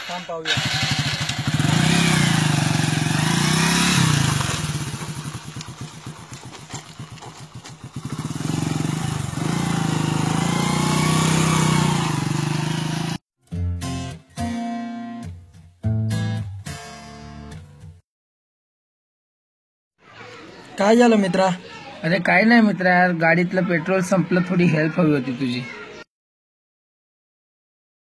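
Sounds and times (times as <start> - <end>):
motorcycle engine revving: 0.0 - 13.2.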